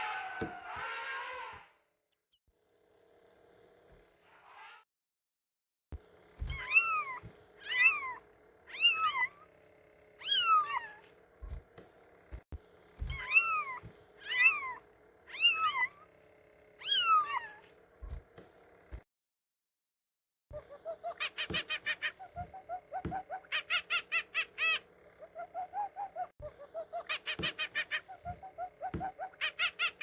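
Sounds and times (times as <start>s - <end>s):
cat meowing: 6.5s - 9.4s, 10.2s - 11.0s, 13.1s - 16.0s, 16.8s - 17.6s.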